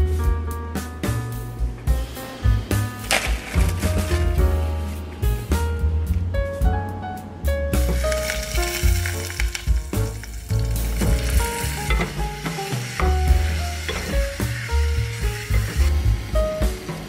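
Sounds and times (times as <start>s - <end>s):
meat sizzling in a saucepan: 7.8s - 17.0s.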